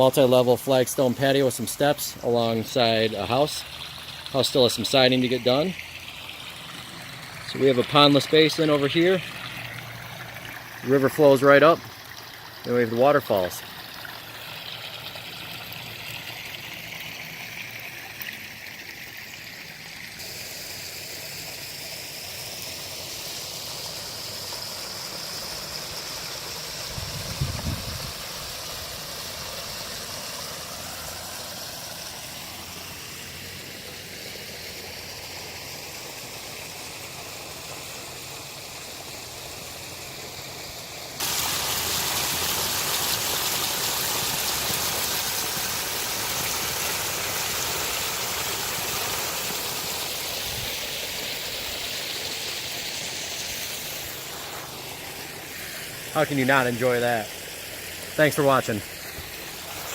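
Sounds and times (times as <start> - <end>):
water splashing over rock: 41.2 - 52.6.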